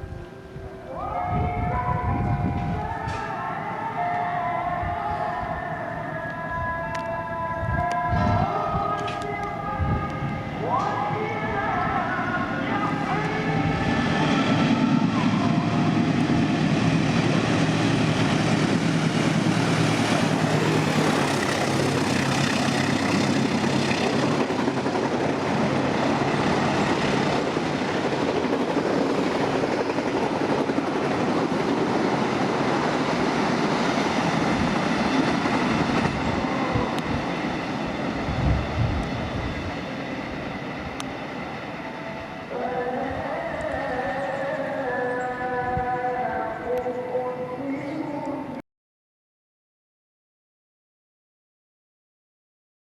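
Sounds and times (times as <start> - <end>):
freight train wagons rumbling: 7.0 - 44.3.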